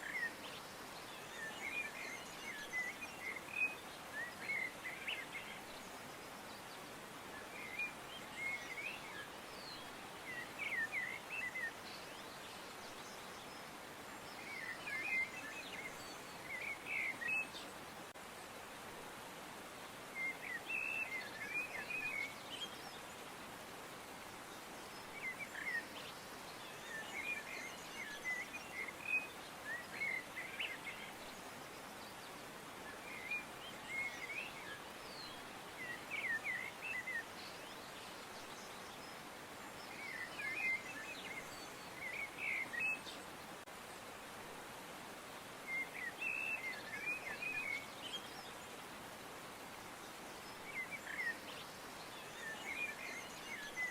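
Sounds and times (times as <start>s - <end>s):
songbirds chirping: 0.0s - 53.9s
steady background hiss: 0.0s - 53.9s.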